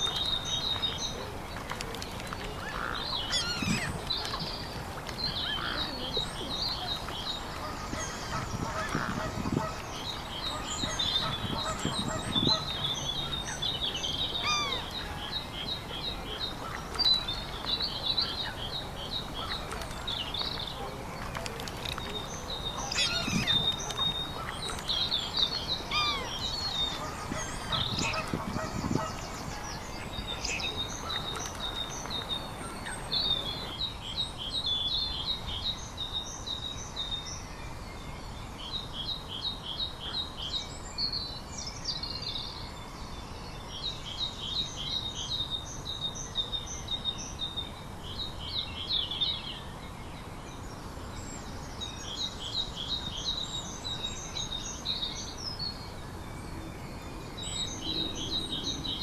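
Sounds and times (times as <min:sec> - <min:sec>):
small birds chirping and trilling: 0:00.0 - 0:37.4, 0:50.5 - 0:59.0
lower bird calls: 0:50.7 - 0:59.0.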